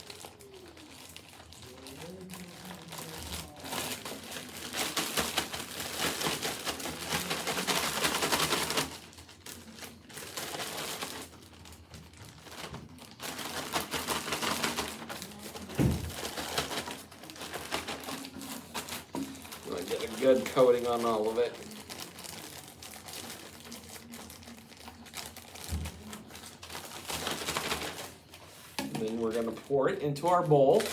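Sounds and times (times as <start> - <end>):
cereal rattling in plastic bag: 0.0 - 30.9
thump: 15.8 - 16.2.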